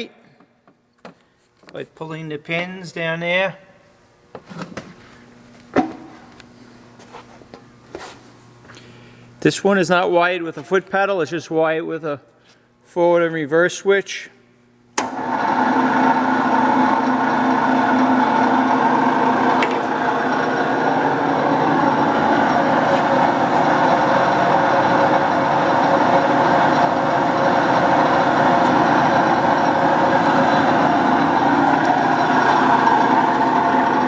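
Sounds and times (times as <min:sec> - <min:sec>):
machine motor humming: 0:15.0 - 0:34.0.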